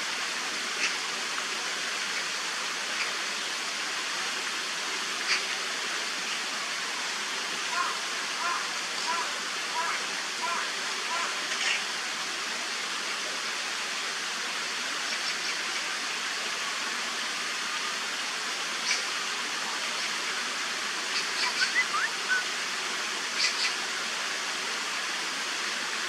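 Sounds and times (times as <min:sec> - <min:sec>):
flowing water rushing: 0:00.0 - 0:26.0
bird chirps: 0:21.4 - 0:22.4.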